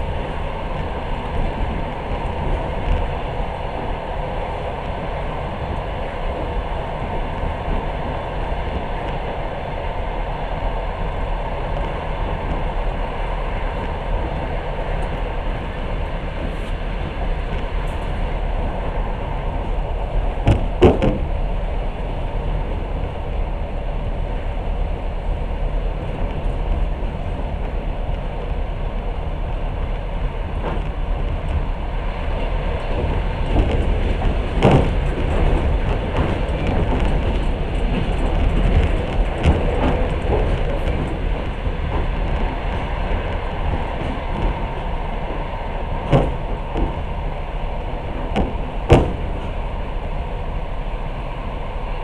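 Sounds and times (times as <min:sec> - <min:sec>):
train wheels rumbling: 0:00.0 - 0:52.0
sharp knocks: 0:20.4 - 0:21.3, 0:46.0 - 0:47.1, 0:48.2 - 0:49.6.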